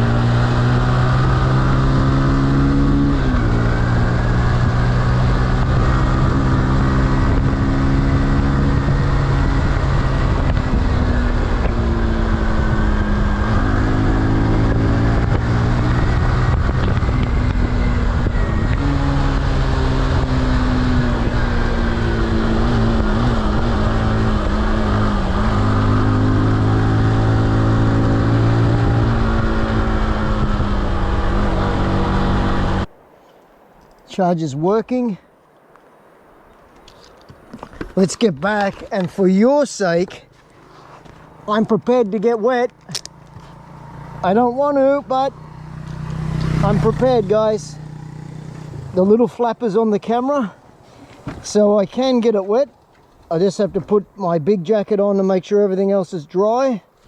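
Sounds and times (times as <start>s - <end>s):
motorcycle engine revving: 0.0s - 32.9s, 40.2s - 49.4s
wind rushing over microphone: 0.0s - 35.4s.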